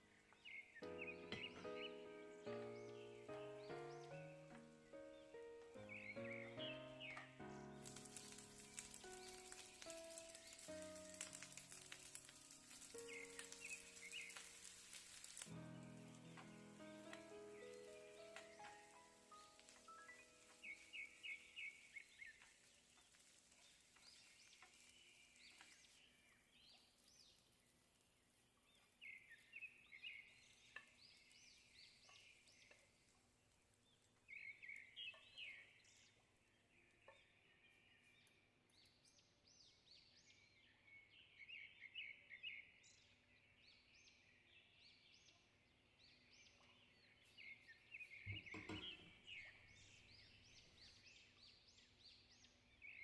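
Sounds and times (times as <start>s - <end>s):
bird chirping trills: 0.0s - 26.8s, 46.2s - 51.9s.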